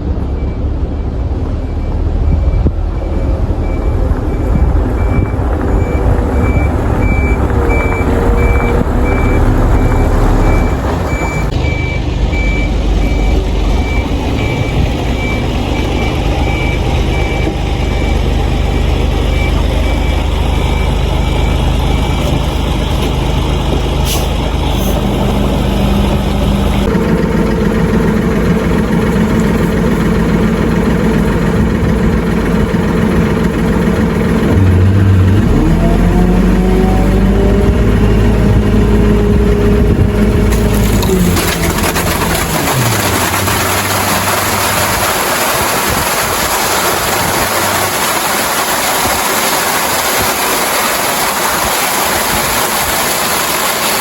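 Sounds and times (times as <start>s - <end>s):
truck engine running: 0.0s - 54.0s
high electronic beeps: 1.7s - 22.3s.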